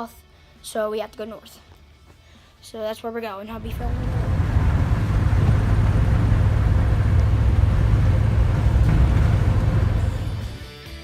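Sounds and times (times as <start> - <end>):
diesel truck engine rumble: 3.5 - 10.7
road noise: 3.5 - 10.7.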